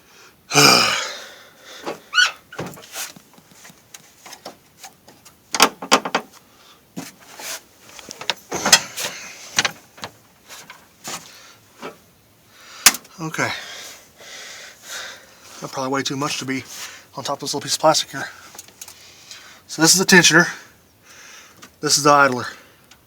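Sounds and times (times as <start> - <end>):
plastic and metal parts knocking: 5.5 - 6.3.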